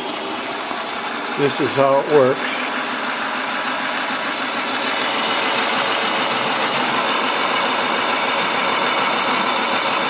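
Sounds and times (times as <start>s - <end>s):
lathe running: 0.0s - 10.0s.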